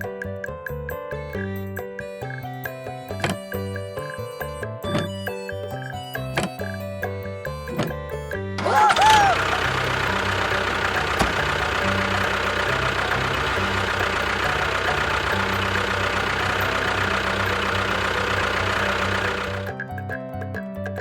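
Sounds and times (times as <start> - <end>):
background music bass line: 0.0 - 21.0
small engine running: 1.4 - 20.0.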